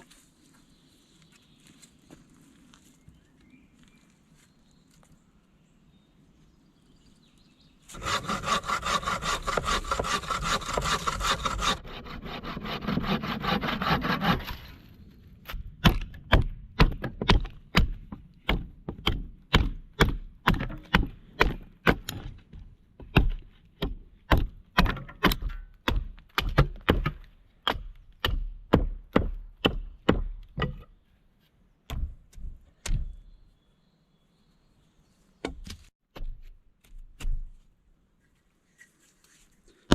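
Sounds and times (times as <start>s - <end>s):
wood being sawn: 7.9s - 14.8s.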